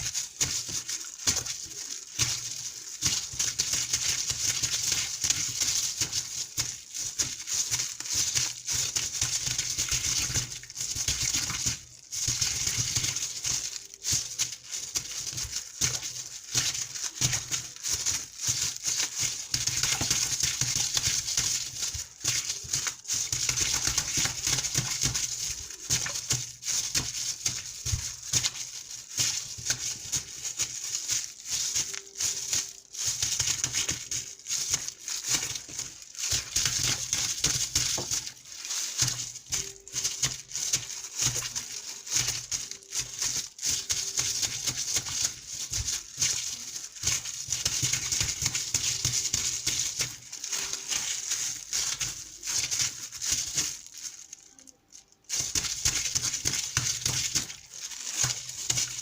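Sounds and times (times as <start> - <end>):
water splashing and dripping: 0.0 - 54.4, 55.3 - 59.0.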